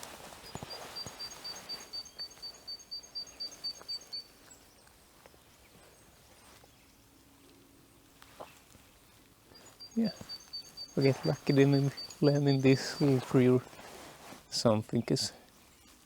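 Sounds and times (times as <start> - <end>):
faint forest ambience: 0.0 - 16.0
small songbird calling: 0.4 - 7.4, 9.5 - 13.8.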